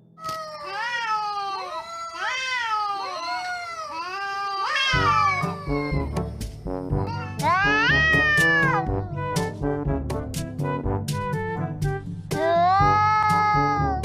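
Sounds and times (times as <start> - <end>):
cats meowing: 0.2 - 6.1, 7.1 - 8.9, 12.4 - 14.0
music with low pulse: 5.5 - 14.0.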